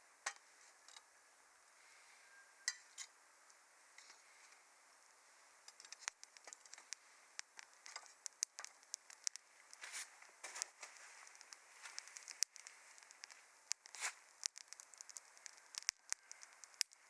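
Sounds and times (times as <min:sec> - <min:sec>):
faint hiss: 0:00.0 - 0:17.0
wood fire crackling: 0:04.2 - 0:17.0.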